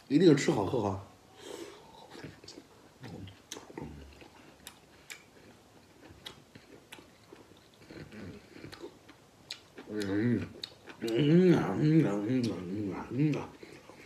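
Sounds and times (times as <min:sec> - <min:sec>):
man chewing food: 0:01.6 - 0:14.0
mouth smacks and clicks: 0:06.0 - 0:11.3, 0:12.3 - 0:14.0.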